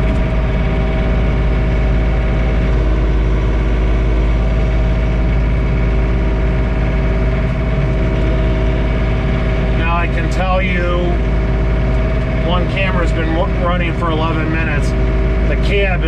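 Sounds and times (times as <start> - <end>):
snowblower turning: 0.0 - 16.0
tractor diesel engine running: 0.0 - 16.0.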